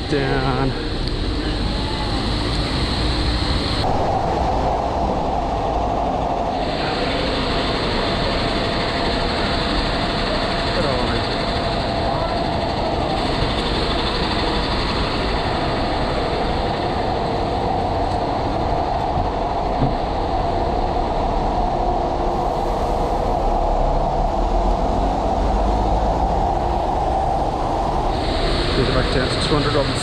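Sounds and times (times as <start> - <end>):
heavy rain pouring: 22.3 - 30.0.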